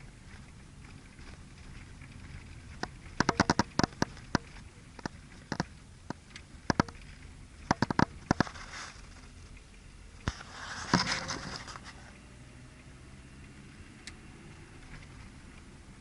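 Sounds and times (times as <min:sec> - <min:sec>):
leaves and twigs crackling underfoot: 0:08.1 - 0:09.6, 0:10.2 - 0:12.2.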